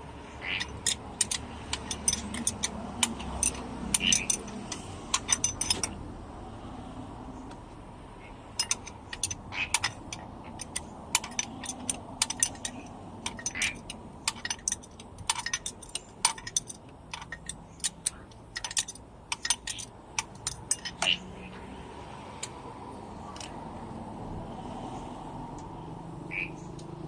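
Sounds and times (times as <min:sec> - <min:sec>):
steel tools clinking on metal: 0:00.4 - 0:06.0, 0:08.5 - 0:21.5.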